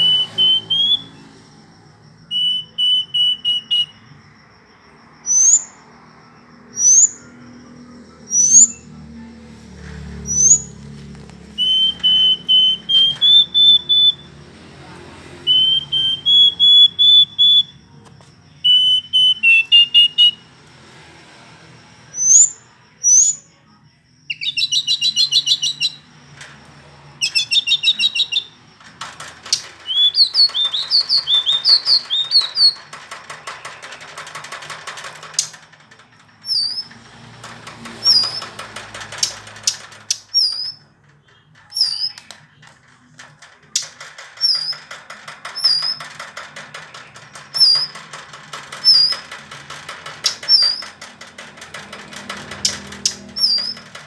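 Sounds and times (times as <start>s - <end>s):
bird singing whistled notes and trills: 0.0s - 1.3s, 2.2s - 4.2s, 5.2s - 5.9s, 6.7s - 9.1s, 10.2s - 10.8s, 11.5s - 14.4s, 15.5s - 17.9s, 18.5s - 20.5s, 22.1s - 23.6s, 24.2s - 26.5s, 27.2s - 35.5s, 39.7s - 42.3s.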